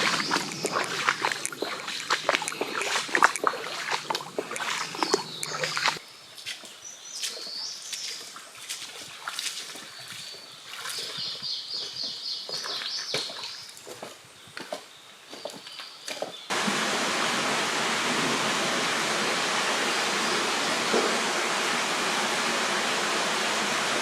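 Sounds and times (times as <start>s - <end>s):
steady water stream: 0.0s - 6.6s, 7.2s - 14.2s, 16.5s - 24.0s
water splashing and sloshing: 0.0s - 6.6s, 7.2s - 14.1s, 16.5s - 24.0s
bird chirping: 0.0s - 8.3s, 9.9s - 13.8s.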